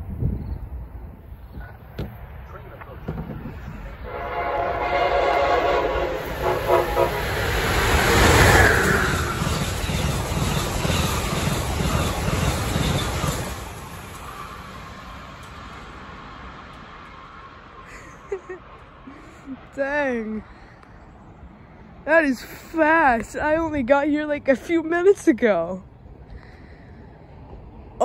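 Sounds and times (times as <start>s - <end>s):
train passing rush and rumble: 0.0s - 28.0s
train horn: 4.0s - 7.8s.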